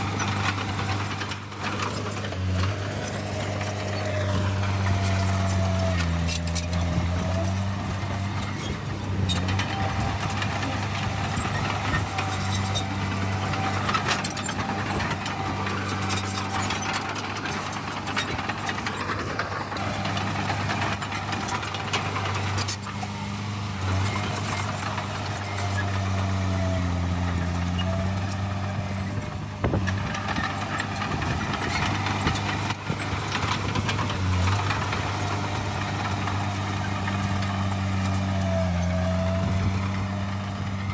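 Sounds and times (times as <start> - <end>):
diesel machinery engine hum: 0.0 - 40.9.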